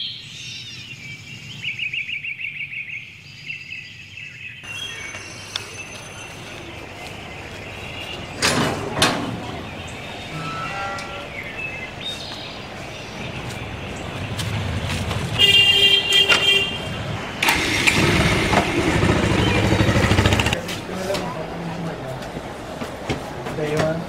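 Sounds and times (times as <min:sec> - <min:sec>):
horn toot: 0:08.4 - 0:11.8, 0:15.3 - 0:20.6
motorcycle engine running: 0:16.9 - 0:20.6.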